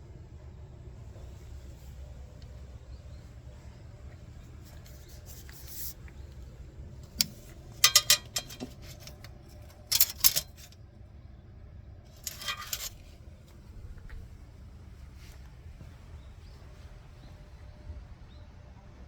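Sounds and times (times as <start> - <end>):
brief metal rattle: 7.1 - 10.8, 12.1 - 13.1
sharp metallic clicks and clinks: 7.2 - 10.8, 12.2 - 13.0.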